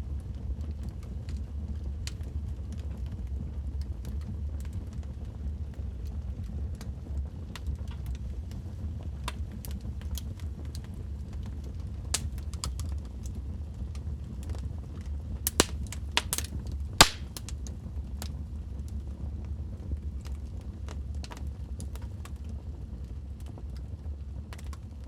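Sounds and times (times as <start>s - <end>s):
low rumble of flames: 0.0s - 25.0s
fire pops and snaps: 9.2s - 18.4s, 21.2s - 22.5s, 24.5s - 25.0s.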